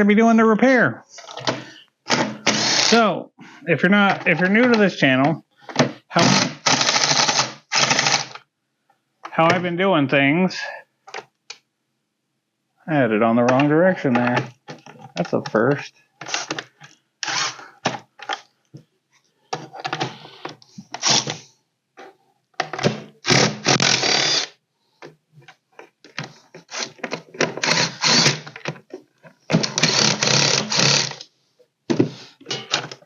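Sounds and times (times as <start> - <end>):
hand tools clattering: 32.4 - 33.0.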